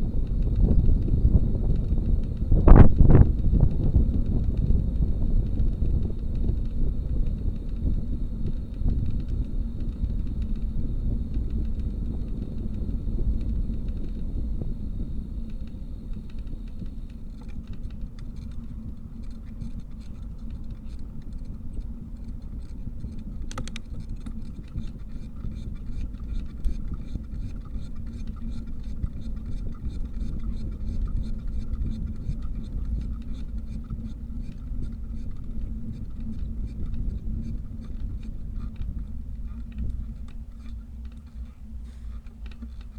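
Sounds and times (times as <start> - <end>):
bicycle rolling noise: 0.0 - 42.9
wind on microphone: 0.0 - 42.9
quick light ticks: 0.2 - 42.9
sharp click: 23.5 - 23.9.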